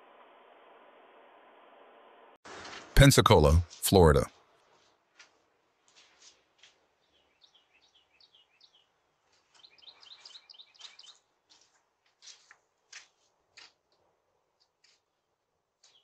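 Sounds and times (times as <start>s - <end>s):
faint birds chirping: 5.6s - 16.0s.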